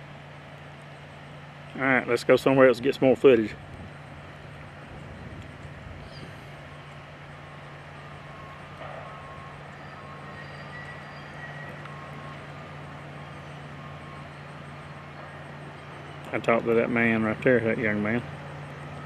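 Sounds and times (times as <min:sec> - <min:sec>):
truck engine running: 0:00.0 - 0:19.0
backup alarm beeping: 0:06.1 - 0:19.0.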